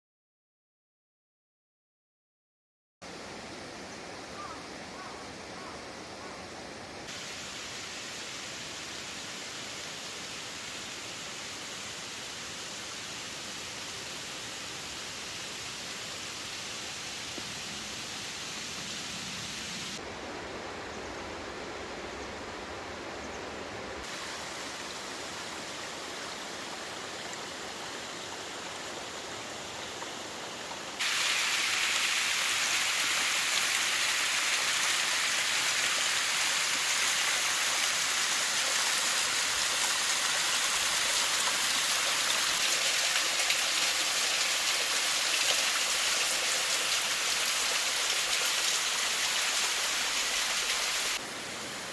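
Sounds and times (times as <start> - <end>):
waterfall rushing: 7.1 - 16.8, 24.0 - 51.9.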